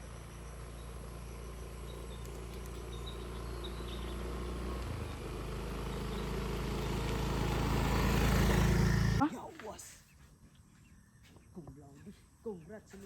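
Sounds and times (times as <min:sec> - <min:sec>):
low motor hum: 0:00.0 - 0:09.2.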